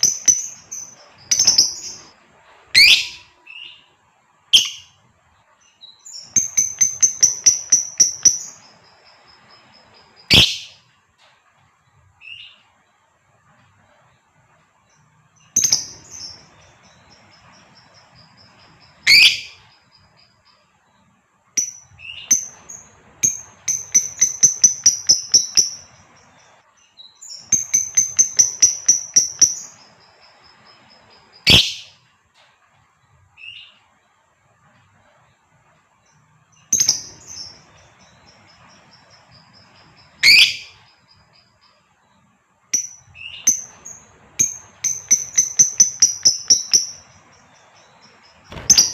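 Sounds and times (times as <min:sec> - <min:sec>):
lovebird chirping and shrieking: 0:02.8 - 0:03.8, 0:04.6 - 0:05.0, 0:10.2 - 0:10.8, 0:19.0 - 0:19.6, 0:31.4 - 0:32.0, 0:40.2 - 0:40.8, 0:48.5 - 0:48.9.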